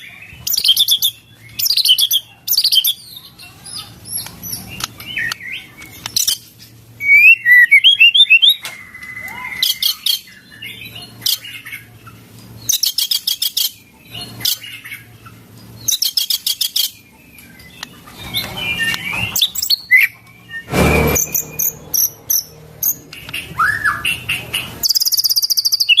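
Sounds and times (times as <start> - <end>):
songbird singing whistles and trills: 0.1 - 3.3, 4.1 - 11.7, 15.8 - 17.9, 18.6 - 26.0
harsh burst of noise: 20.7 - 22.7.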